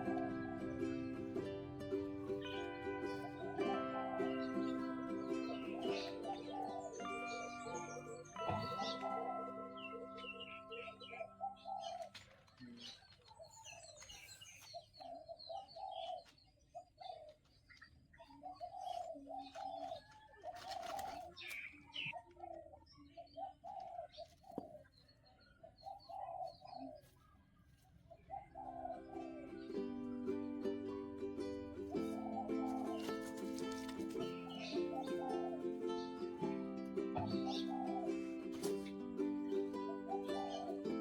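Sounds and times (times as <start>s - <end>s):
higher bird chirps: 0.0s - 17.2s, 31.8s - 41.0s
birds making low short calls: 5.3s - 17.4s, 37.2s - 41.0s.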